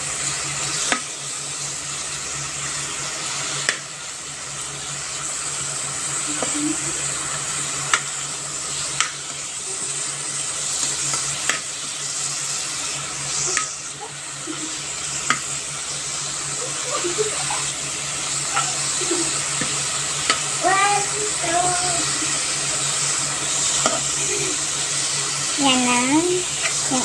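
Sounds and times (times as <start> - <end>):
spinach sizzling in a pan: 0.0 - 27.0.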